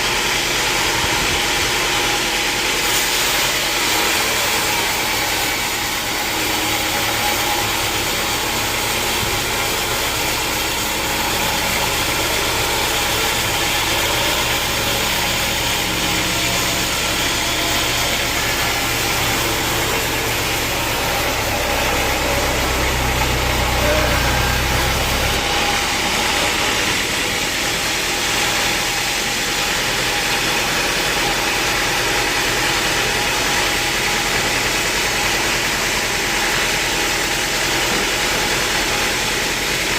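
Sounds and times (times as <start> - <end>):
sawmill machinery running: 0.0 - 39.9
low hum: 8.3 - 27.4.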